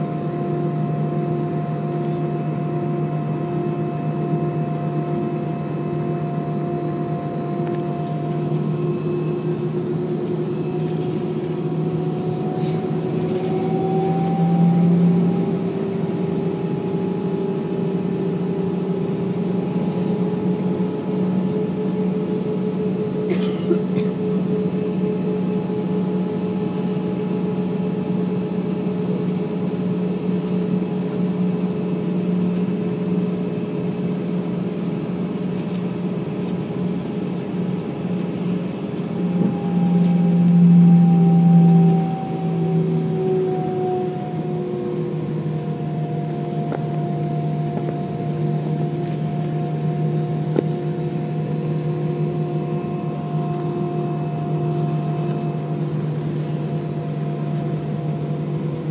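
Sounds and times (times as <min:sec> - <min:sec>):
jet engines droning: 0:00.0 - 0:58.9.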